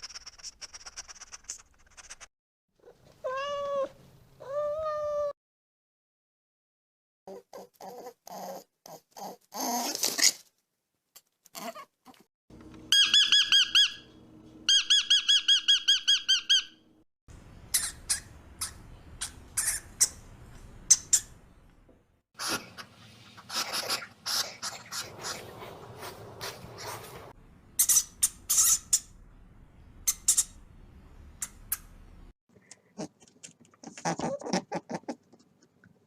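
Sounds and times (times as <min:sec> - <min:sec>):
animal squeaky calls: 0:12.9 - 0:14.1, 0:17.7 - 0:20.2.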